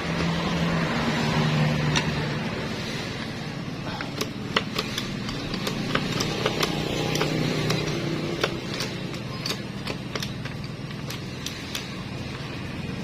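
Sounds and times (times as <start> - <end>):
metallic clicks and taps: 1.8 - 2.3, 3.9 - 13.0.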